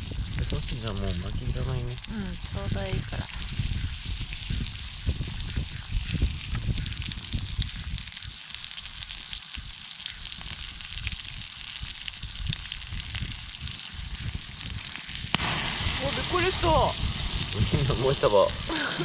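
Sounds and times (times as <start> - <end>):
meat sizzling on a griddle: 0.0 - 19.0
low rumble: 15.3 - 18.7.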